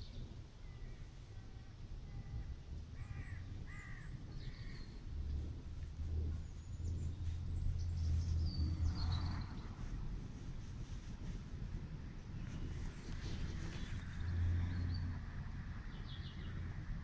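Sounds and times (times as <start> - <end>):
low rumble: 2.7 - 17.0
small birds chirping: 3.0 - 10.1, 12.2 - 15.2.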